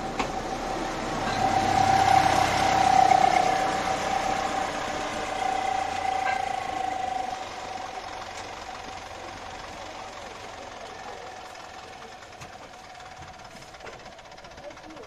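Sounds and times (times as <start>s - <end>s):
train rushing and rattling: 0.0s - 15.0s
train wheels squealing: 0.5s - 9.0s.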